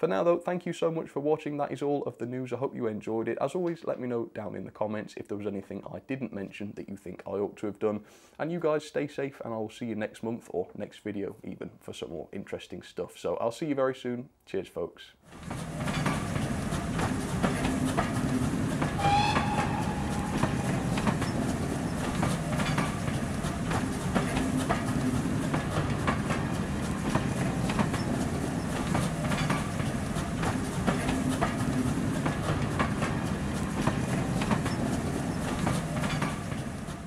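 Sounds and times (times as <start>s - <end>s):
railway coaches rumbling past: 15.3s - 37.0s
wheels clicking over rail joints: 15.3s - 37.0s.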